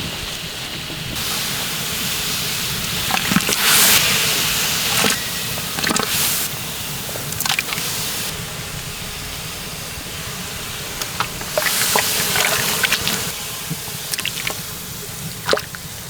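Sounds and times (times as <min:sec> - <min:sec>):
liquid pouring and splashing: 0:02.9 - 0:04.1, 0:04.9 - 0:05.2, 0:05.8 - 0:06.4, 0:07.4 - 0:07.9, 0:11.0 - 0:13.4, 0:14.1 - 0:14.7, 0:15.3 - 0:15.9.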